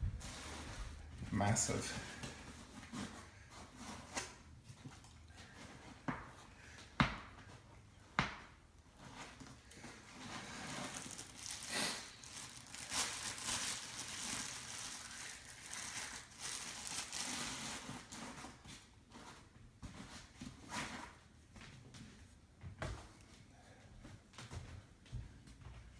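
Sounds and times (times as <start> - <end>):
wrapping crinkling and rustling: 9.0 - 19.5.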